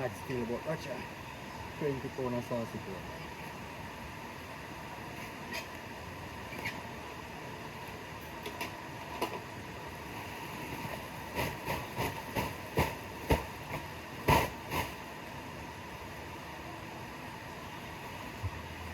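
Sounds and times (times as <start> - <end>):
steady background hiss: 0.0 - 18.9
sharp knocks and thumps: 11.3 - 14.9.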